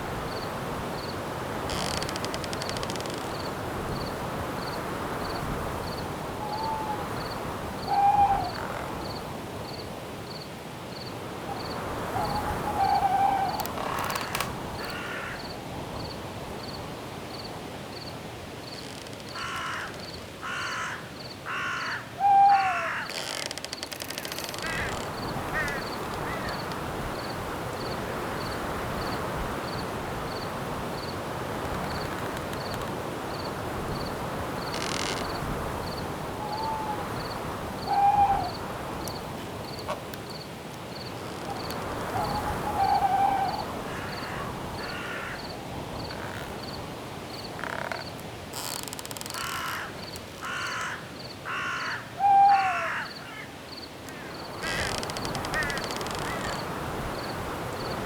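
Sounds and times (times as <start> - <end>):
wind-like hiss: 0.0 - 58.0
cricket chirping: 0.2 - 21.9, 22.5 - 58.0
hooting bird calls: 6.4 - 7.1, 7.8 - 8.8, 11.5 - 15.2, 21.7 - 23.1, 36.4 - 38.6, 41.5 - 45.4, 51.7 - 53.4
crow-like caws: 12.2 - 15.6, 19.3 - 26.6, 42.1 - 46.4, 49.2 - 56.6.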